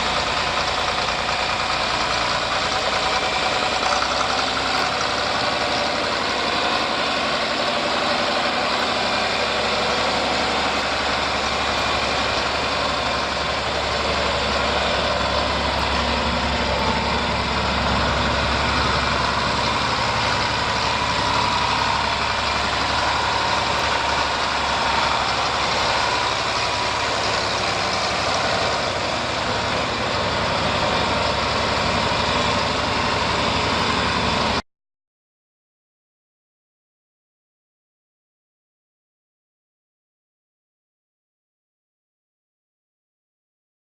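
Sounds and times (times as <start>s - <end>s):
tractor engine idling: 0.0s - 34.6s.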